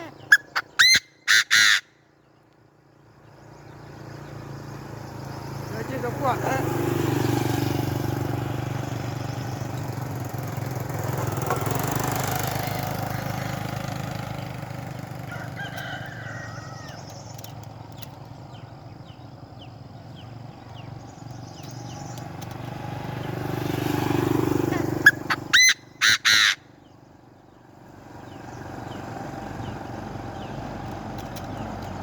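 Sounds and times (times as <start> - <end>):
faint high bird chirps: 0.0 - 6.1
small engine humming: 2.9 - 32.0.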